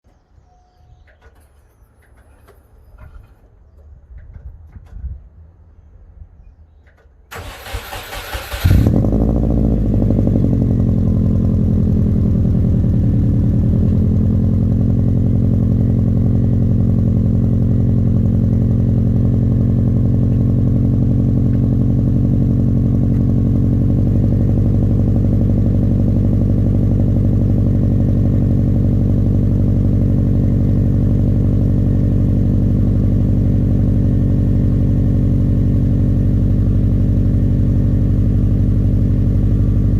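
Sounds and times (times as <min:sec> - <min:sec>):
car engine starting and idling: 0:06.9 - 0:39.9.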